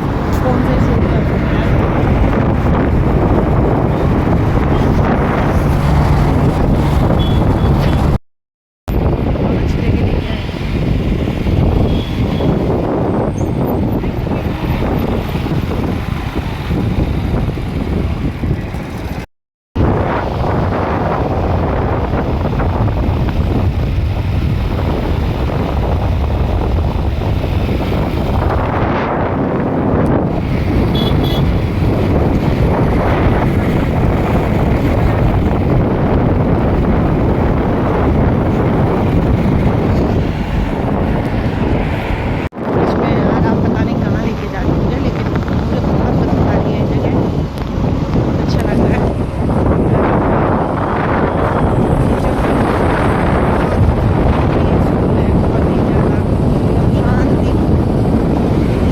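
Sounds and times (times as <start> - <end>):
road rumble: 0.0 - 8.2, 8.9 - 58.9
wind on microphone: 0.0 - 8.2, 8.9 - 58.9
short high beeps: 7.2 - 8.0.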